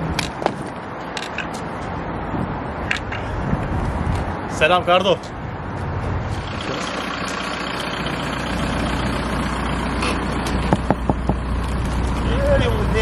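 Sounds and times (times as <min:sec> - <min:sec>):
car engine idling: 0:06.3 - 0:13.0.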